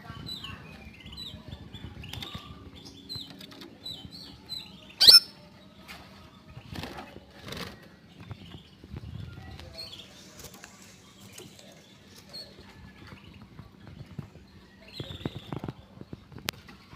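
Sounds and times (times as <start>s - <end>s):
canary chirping: 0.1s - 6.6s.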